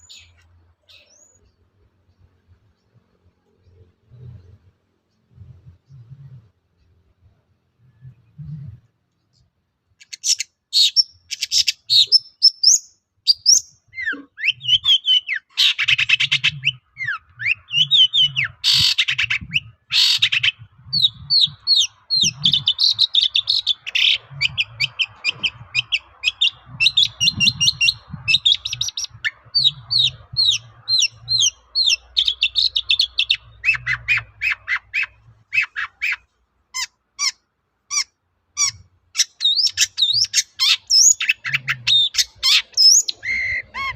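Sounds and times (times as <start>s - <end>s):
bird song: 0.0s - 43.9s
harsh rasping bird calls: 9.9s - 43.9s.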